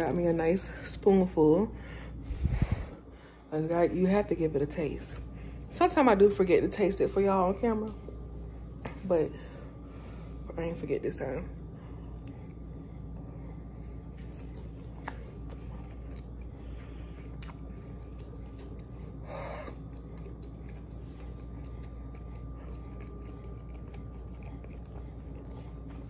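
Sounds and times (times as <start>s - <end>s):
low hum: 0.0s - 26.0s
person chewing food: 11.8s - 26.0s.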